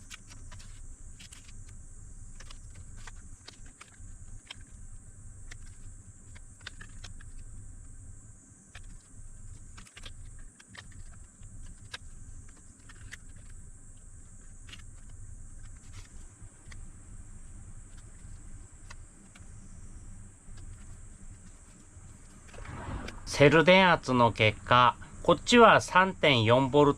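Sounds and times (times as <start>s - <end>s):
low hum: 15.0s - 26.6s
high hiss: 15.8s - 26.9s.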